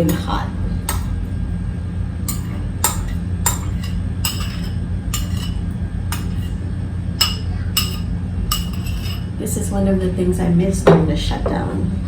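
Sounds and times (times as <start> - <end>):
utensils clinking against bowl: 0.0 - 1.2, 2.3 - 6.6, 7.2 - 9.3
steady low hum: 0.0 - 12.0.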